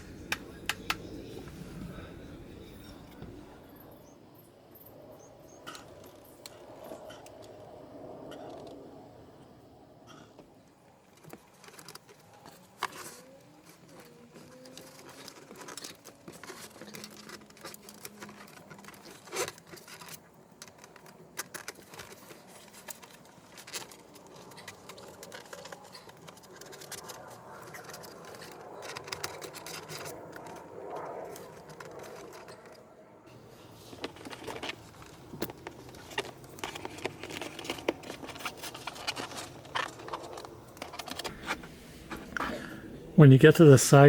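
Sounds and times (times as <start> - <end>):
hands scraping and rustling: 11.1 - 42.8.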